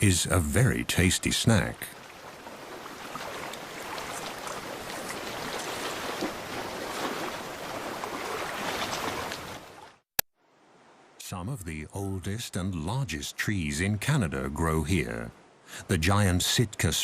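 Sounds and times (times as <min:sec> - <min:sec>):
seawater washing against rocks: 0:00.0 - 0:09.9.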